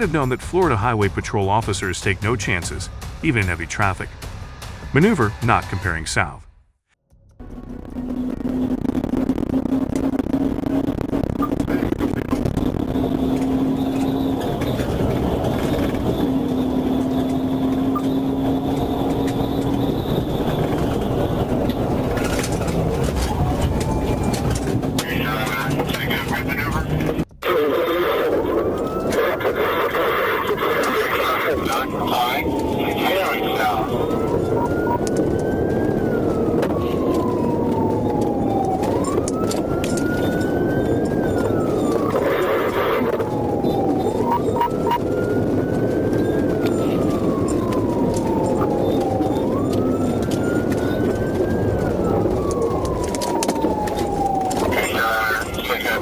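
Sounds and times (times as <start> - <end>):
vehicle road and engine noise: 0.0 - 6.0, 7.1 - 56.0
police siren wailing: 7.4 - 56.0.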